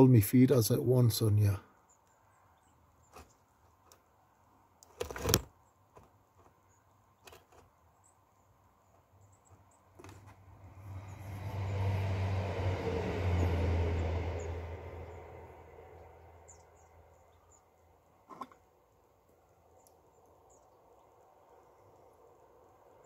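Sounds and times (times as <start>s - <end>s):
vehicle passing by: 10.2s - 17.4s
faint bird chirps: 16.4s - 18.6s.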